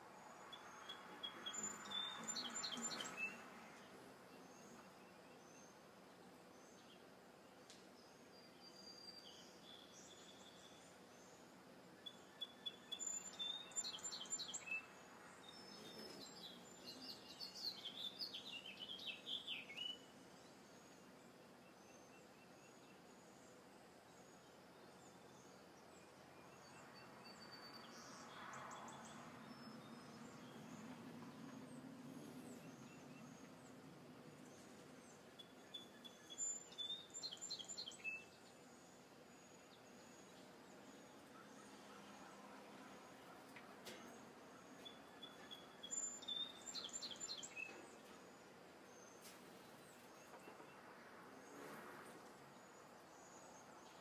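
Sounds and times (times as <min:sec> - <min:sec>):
quiet outdoor background: 0:00.0 - 0:54.0
birds chirping and singing: 0:00.5 - 0:05.8, 0:08.1 - 0:20.9, 0:28.8 - 0:50.8.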